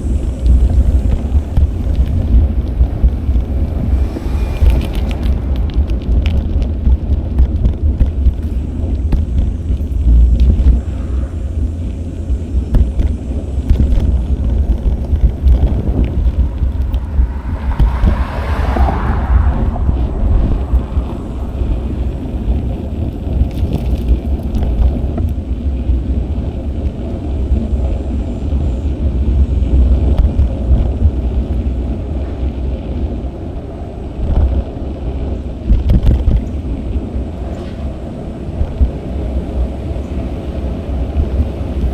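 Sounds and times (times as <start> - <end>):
vehicle passing: 0.0 - 8.7, 14.5 - 24.8
wind rumbling on microphone: 0.0 - 41.9.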